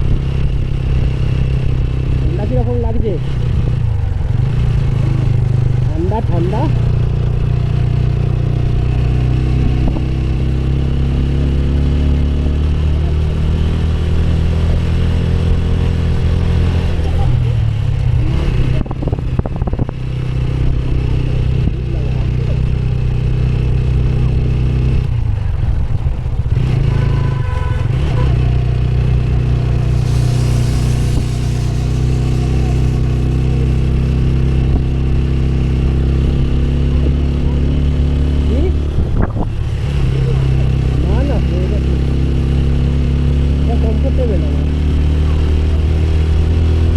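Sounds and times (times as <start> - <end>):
motorcycle engine running: 0.0 - 46.9
brief hiss: 29.9 - 33.6.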